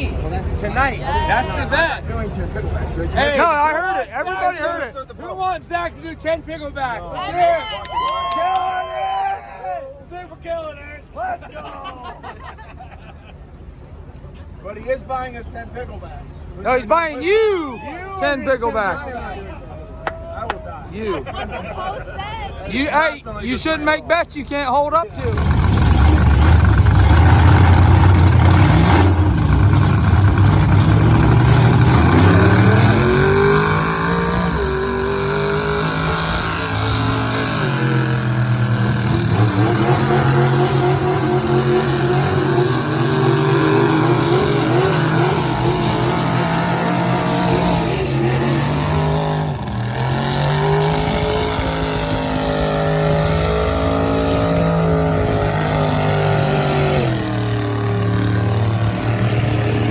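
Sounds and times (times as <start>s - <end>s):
truck engine revving: 25.1s - 59.9s.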